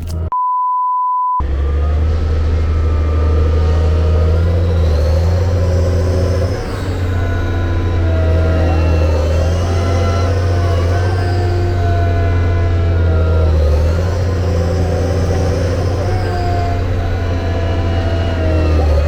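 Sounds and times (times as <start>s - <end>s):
pure beep: 0.3s - 1.4s
heavy engine droning: 1.4s - 19.0s.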